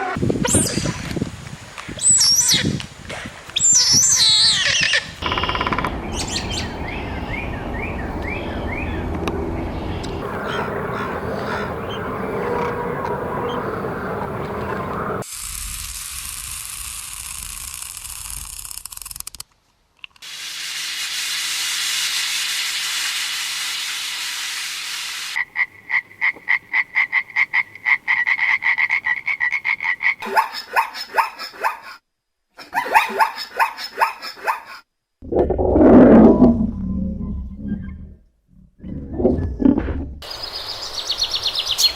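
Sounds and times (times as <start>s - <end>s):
animal croaking calls: 10.2s - 15.2s, 25.4s - 31.9s.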